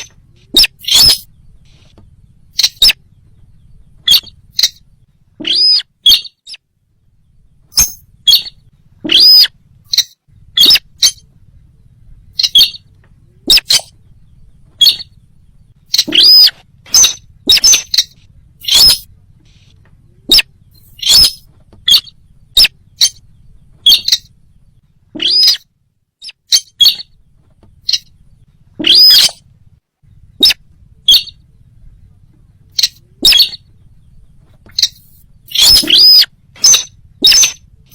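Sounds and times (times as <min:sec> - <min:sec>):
loud sharp bird calls: 0:00.0 - 0:31.7, 0:32.6 - 0:37.9.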